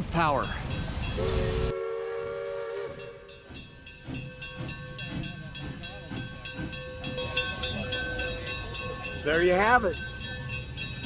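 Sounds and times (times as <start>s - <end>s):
steam locomotive chime whistle: 1.2s - 3.5s, 6.8s - 11.0s
steam hissing: 7.2s - 11.0s.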